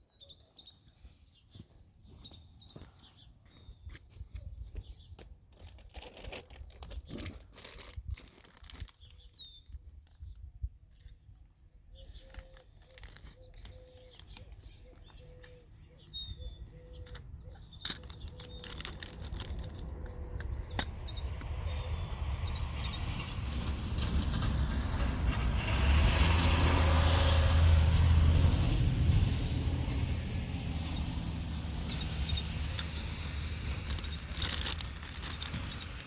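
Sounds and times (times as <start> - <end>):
vehicle passing with deep rumble: 17.6 - 36.0.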